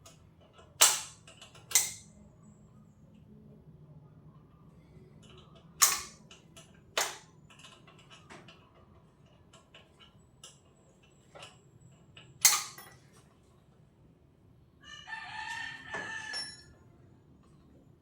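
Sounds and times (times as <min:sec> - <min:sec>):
metal tools knocking and clicking: 0:00.0 - 0:02.1, 0:05.2 - 0:10.7, 0:11.3 - 0:13.0
sharp metal clanks: 0:00.8 - 0:02.1, 0:05.8 - 0:06.2, 0:12.4 - 0:13.0.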